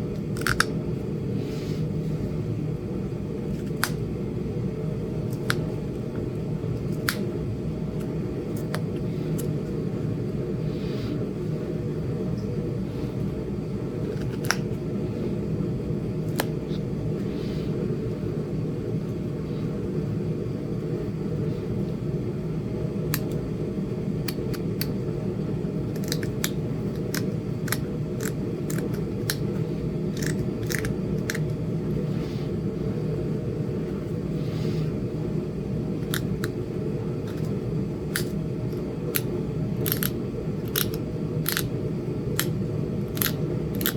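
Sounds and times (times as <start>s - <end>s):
stone knapping clicks and snaps: 0.2s - 0.8s, 3.5s - 4.0s, 5.3s - 5.7s, 14.1s - 14.7s, 26.0s - 29.5s, 30.1s - 31.6s, 36.0s - 36.6s, 37.3s - 43.9s.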